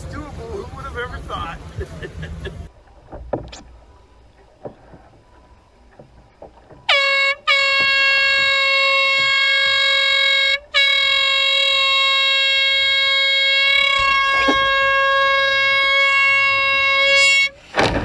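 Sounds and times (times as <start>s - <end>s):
air horn blasts: 6.9s - 17.8s.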